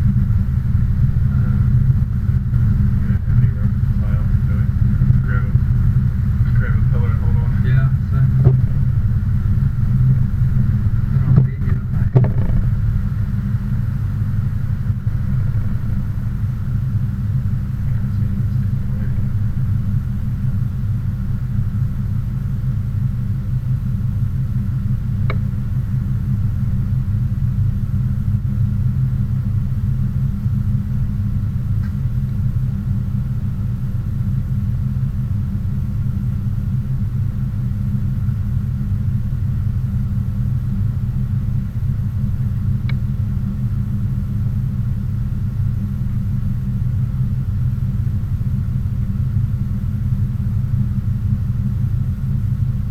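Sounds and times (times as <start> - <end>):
car engine and road noise: 8.2 - 20.2
knocks: 8.4 - 8.7, 11.3 - 12.8
click: 42.8 - 43.0.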